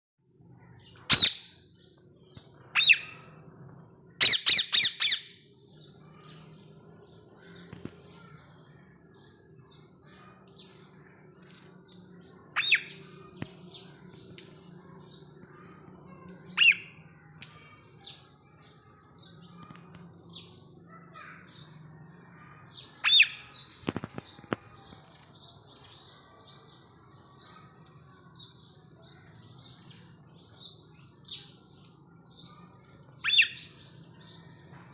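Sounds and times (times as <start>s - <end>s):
parakeets screeching: 1.1s - 1.6s, 2.7s - 3.2s, 4.2s - 5.4s, 12.6s - 13.0s, 23.0s - 24.2s, 33.2s - 33.7s.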